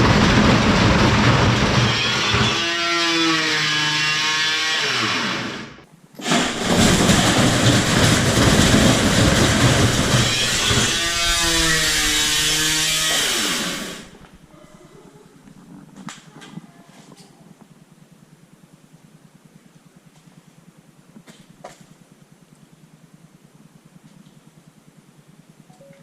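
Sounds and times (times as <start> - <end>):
washing machine spinning unbalanced: 0.0 - 3.1, 6.2 - 14.5
downward gliding whine: 9.8 - 14.4.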